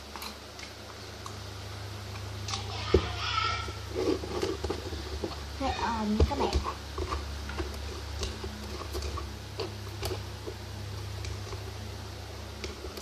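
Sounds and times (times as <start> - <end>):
steady low hum: 0.0 - 13.0
spoon stirring slime: 3.6 - 13.0.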